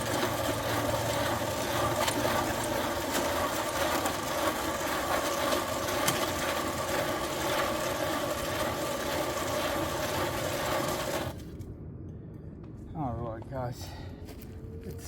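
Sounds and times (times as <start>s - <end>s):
electric mixer churning concrete: 0.0s - 11.4s.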